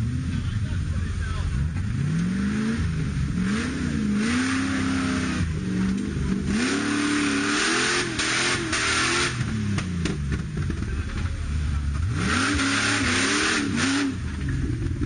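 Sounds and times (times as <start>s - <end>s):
engine revving hard: 1.7s - 9.9s, 12.0s - 15.0s.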